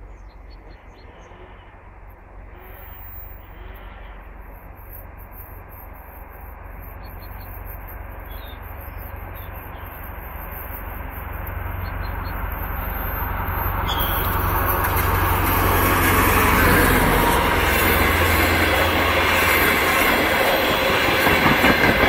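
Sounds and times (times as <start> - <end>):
diesel train approaching: 0.0 - 22.0
faint bird chirps: 13.8 - 14.4.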